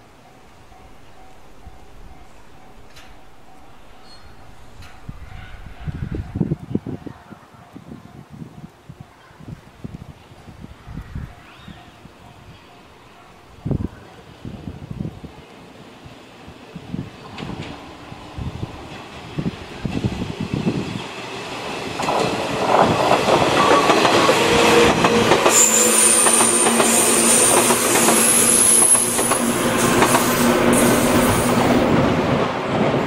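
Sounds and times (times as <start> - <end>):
electric train passing: 0.0 - 9.0, 11.4 - 33.0
high-pitched wheel squeal: 25.5 - 29.2.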